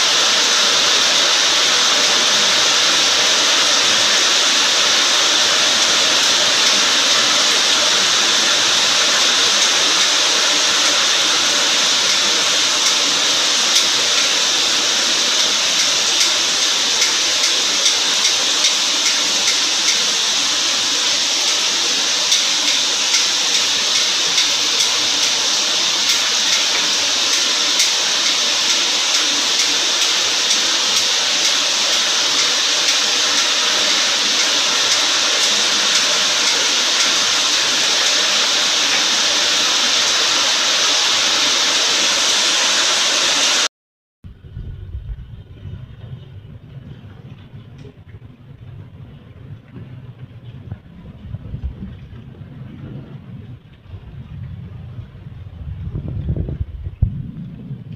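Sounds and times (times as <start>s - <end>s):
heavy rain pouring: 0.0s - 43.7s, 44.8s - 57.9s
low rumble: 44.2s - 57.9s.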